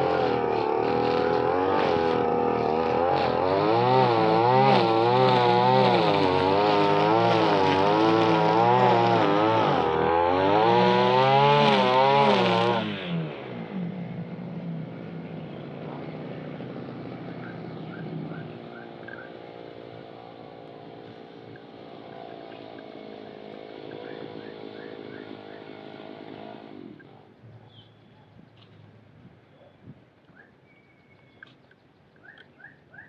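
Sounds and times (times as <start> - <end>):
brush cutter engine running: 0.0 - 27.2
faint chirps: 17.3 - 19.3.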